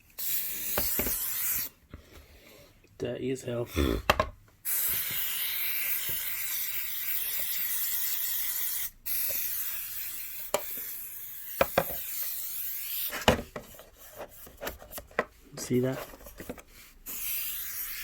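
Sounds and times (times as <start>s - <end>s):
compressed air spray hiss: 4.7s - 13.1s, 17.0s - 18.0s.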